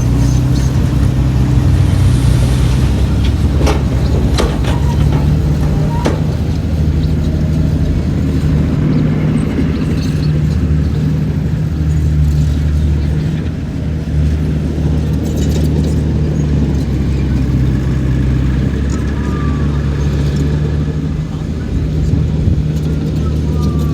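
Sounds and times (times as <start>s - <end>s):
heavy diesel engine running: 0.0s - 23.9s.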